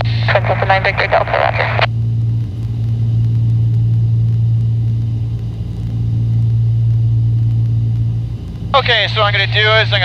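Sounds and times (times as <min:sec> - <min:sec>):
propeller plane engine drone: 0:00.0 - 0:10.0.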